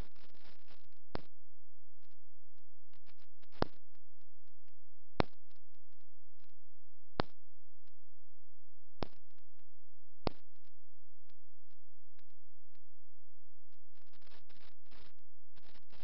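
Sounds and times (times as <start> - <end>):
fireworks pops and crackles: 0.0 - 1.4, 2.9 - 6.6, 7.2 - 8.0, 9.0 - 9.6, 10.2 - 10.8, 14.0 - 16.0.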